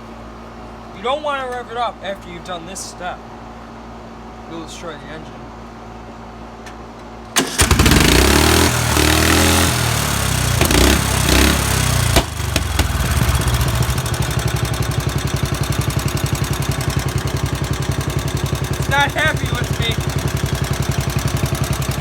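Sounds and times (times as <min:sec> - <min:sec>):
lawn mower engine running: 0:07.4 - 0:22.0
sharp crack: 0:10.5 - 0:13.2.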